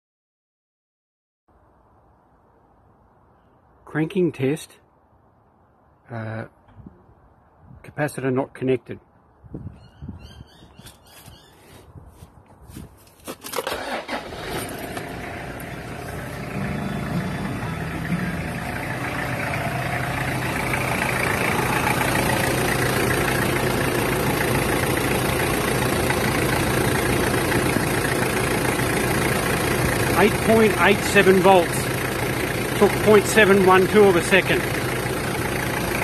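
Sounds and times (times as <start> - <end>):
car starter cranking: 13.4 - 17.6
car engine idling: 13.8 - 36.0.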